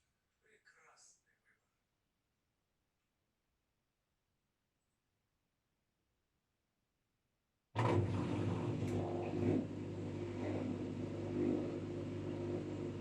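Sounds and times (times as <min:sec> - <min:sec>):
washing machine running: 0:07.8 - 0:13.0.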